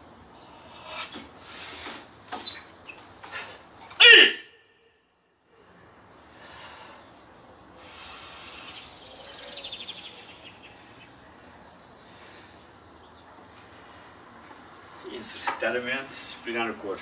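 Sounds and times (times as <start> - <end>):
bird twittering trill: 0.0 - 3.4, 5.1 - 17.0
outdoor background noise: 0.0 - 17.0.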